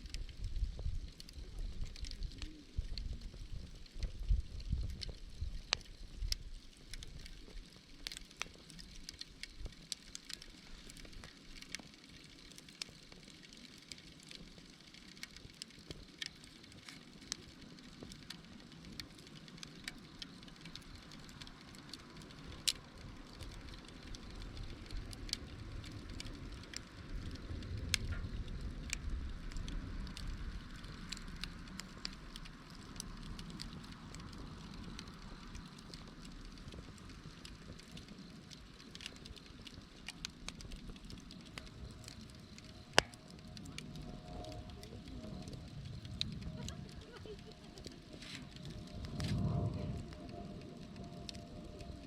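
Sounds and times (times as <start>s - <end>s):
wind rumble on microphone: 0.0s - 7.8s, 17.2s - 52.0s
campfire crackling and popping: 0.0s - 52.0s.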